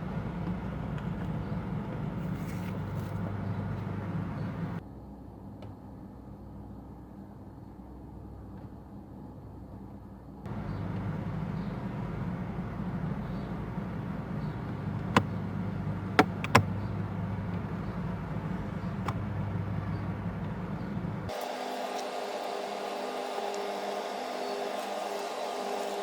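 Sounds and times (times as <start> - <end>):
climate fan running: 0.0 - 4.8, 10.5 - 26.0
sharp knocks under dashboard: 16.2 - 16.7.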